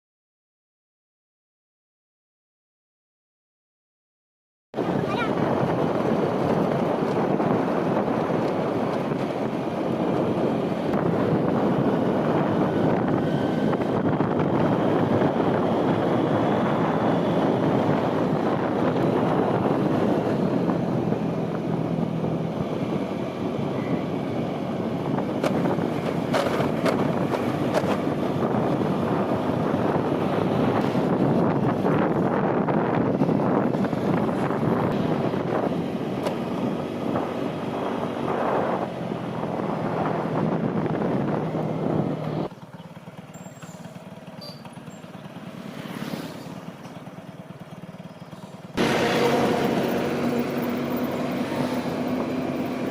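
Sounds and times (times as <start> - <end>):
wind buffeting microphone: 4.8 - 42.5
road and wind noise: 4.8 - 52.9.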